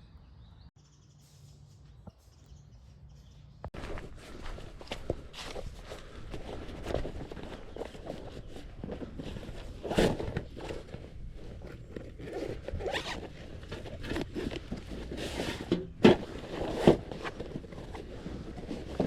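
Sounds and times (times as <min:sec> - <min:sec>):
zipper rasping: 0:09.6 - 0:15.5.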